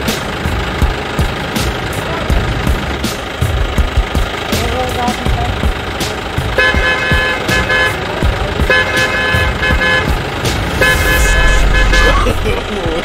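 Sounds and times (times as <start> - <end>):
low engine noise: 0.0 - 13.0
car horn toots: 6.5 - 12.4.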